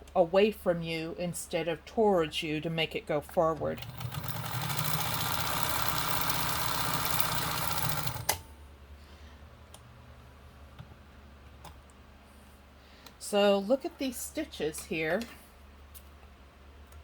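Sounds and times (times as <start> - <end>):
sewing machine stitching: 3.7 - 8.4.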